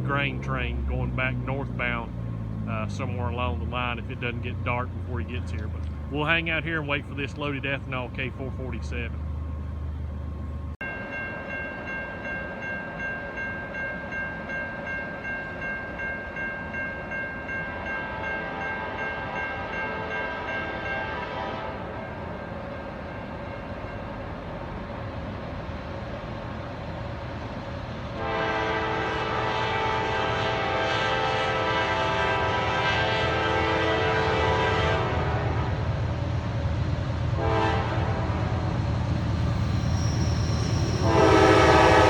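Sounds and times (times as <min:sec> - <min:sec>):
train rumble: 0:00.0 - 0:42.0
locomotive horn blasts: 0:17.7 - 0:22.2, 0:28.2 - 0:36.0, 0:37.4 - 0:38.8, 0:40.7 - 0:42.0.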